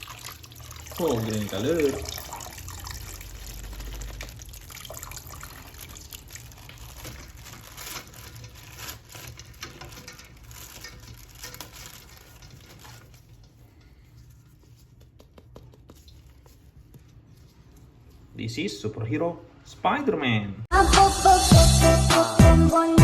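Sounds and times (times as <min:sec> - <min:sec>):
water running from a tap: 0:00.0 - 0:08.4.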